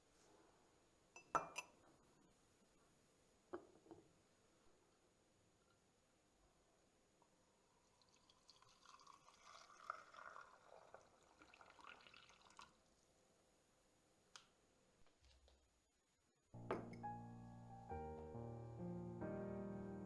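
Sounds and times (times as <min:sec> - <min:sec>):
water trickling: 0:07.8 - 0:12.9.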